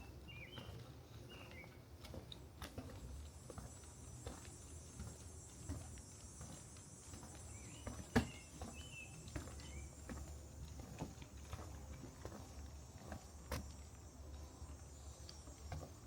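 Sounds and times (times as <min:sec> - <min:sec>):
bird chirping: 0:00.0 - 0:01.8, 0:07.3 - 0:10.1
footsteps on wooden boardwalk: 0:00.0 - 0:16.0.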